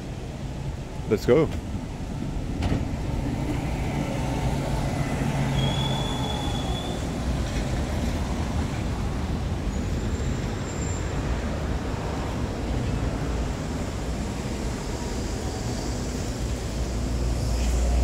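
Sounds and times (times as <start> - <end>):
city traffic rumble: 0.0 - 18.0
high squeal: 5.3 - 7.2, 9.7 - 11.2.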